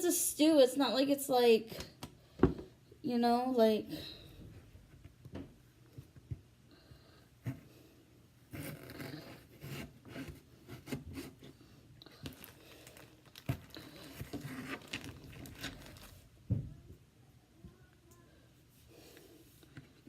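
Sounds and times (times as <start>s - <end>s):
rustling and scraping: 8.5s - 16.3s.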